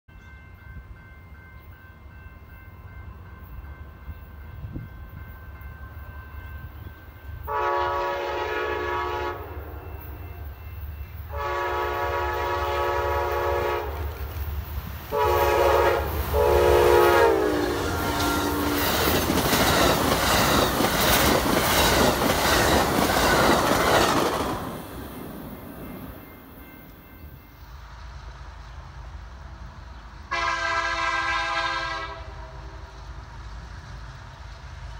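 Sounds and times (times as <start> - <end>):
locomotive air horn blasts: 7.4 - 10.6, 11.3 - 14.2, 15.1 - 19.1, 30.3 - 32.9
train wheels clattering on rails: 16.0 - 27.6.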